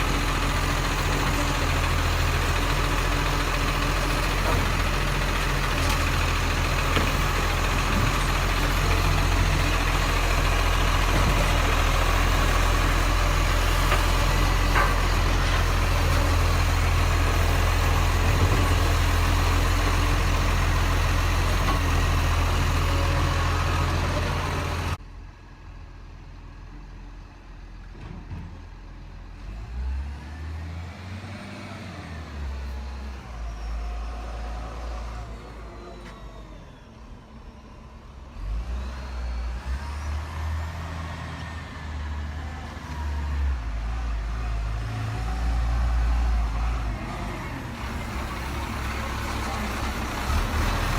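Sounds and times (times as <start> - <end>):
garbage truck engine running: 0.0 - 25.1, 41.9 - 50.9.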